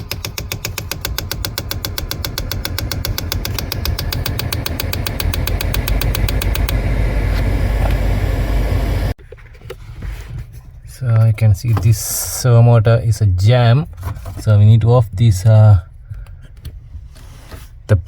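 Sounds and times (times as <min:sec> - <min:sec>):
servo motor ticking rapidly: 0:00.0 - 0:07.2
steady low rumble: 0:01.0 - 0:09.2.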